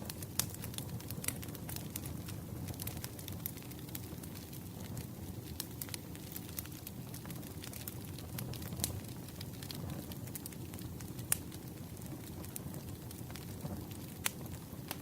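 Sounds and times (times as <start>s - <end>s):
burning wood crackling: 0.0s - 15.0s
low rumble of flames: 0.0s - 15.0s.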